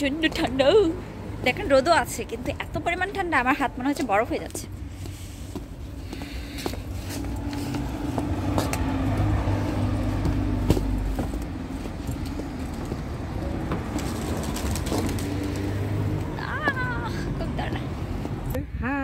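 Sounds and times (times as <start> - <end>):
vehicle engine running: 5.0 - 18.5.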